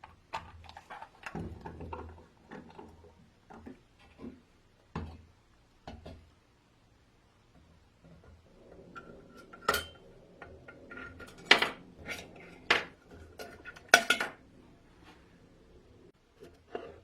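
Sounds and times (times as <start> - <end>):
faint ringing: 8.4 - 16.1
dishes and utensils clinking: 8.7 - 14.5.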